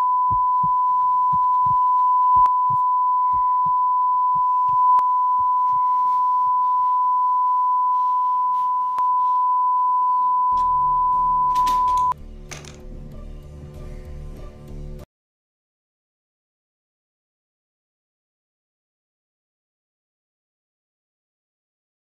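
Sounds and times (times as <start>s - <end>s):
high-pitched sine tone: 0.0s - 12.2s
heartbeat-like double thumps: 0.2s - 5.8s.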